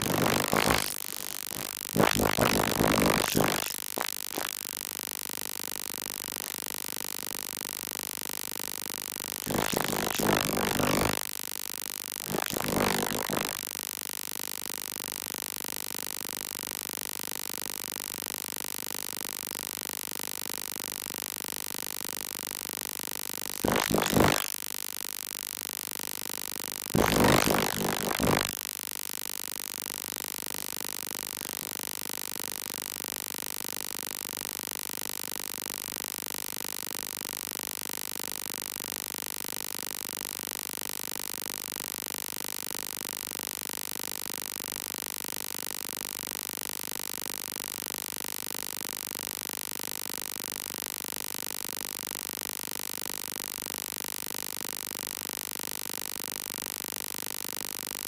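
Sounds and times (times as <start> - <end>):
pulsing electronic buzz: 0.0 - 6.9, 9.2 - 11.3, 12.1 - 13.8, 23.5 - 24.6, 26.9 - 28.6.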